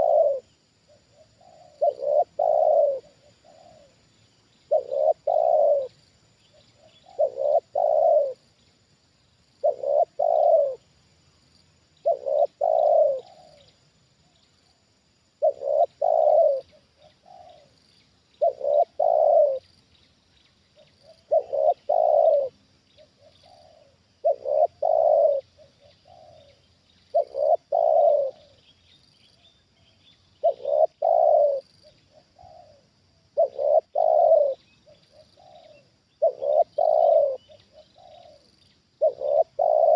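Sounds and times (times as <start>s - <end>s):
dove cooing: 0.0s - 4.0s, 4.6s - 8.4s, 9.6s - 10.9s, 12.0s - 13.8s, 15.4s - 17.8s, 18.4s - 19.7s, 20.8s - 28.6s, 30.4s - 39.9s.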